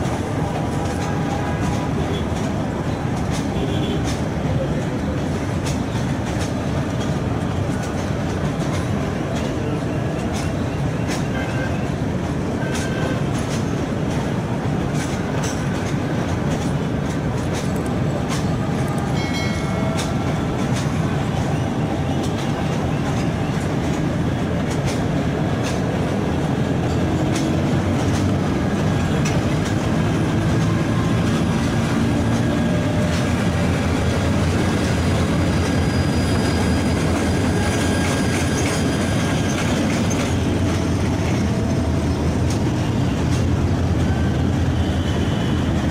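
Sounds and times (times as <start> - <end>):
train rumbling on rails: 0.0 - 45.9
wheels clicking over rail joints: 0.0 - 45.9
high squeals: 34.7 - 41.0.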